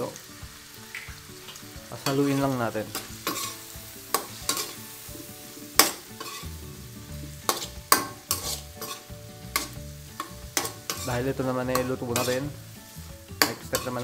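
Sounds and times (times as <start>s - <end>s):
frying sizzle: 0.0s - 14.0s
metal spoon scraping a wok: 2.9s - 5.0s, 5.7s - 6.6s, 7.4s - 12.6s.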